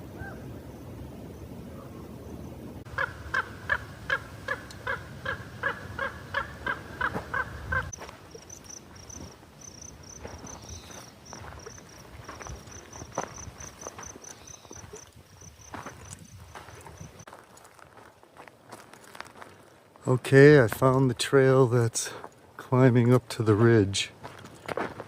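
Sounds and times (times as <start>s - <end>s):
bird calling harsh crow-like notes: 2.9s - 7.9s.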